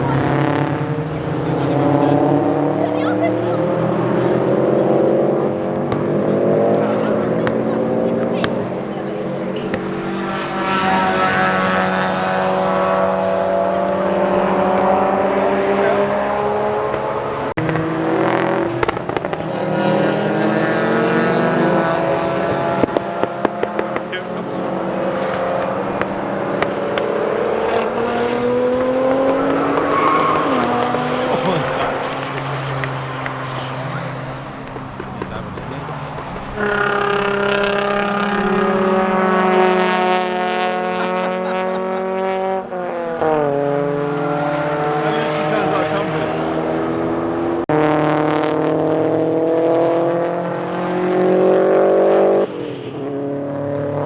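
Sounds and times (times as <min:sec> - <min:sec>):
car engine revving: 0:00.0 - 0:54.0
exhaust pops and crackles: 0:16.8 - 0:20.2, 0:21.9 - 0:40.9.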